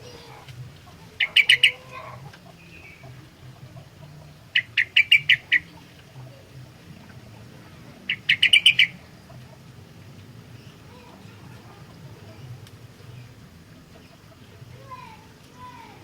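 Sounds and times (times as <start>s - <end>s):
bulbul singing: 0.0s - 16.0s
faint low hum: 0.0s - 16.0s.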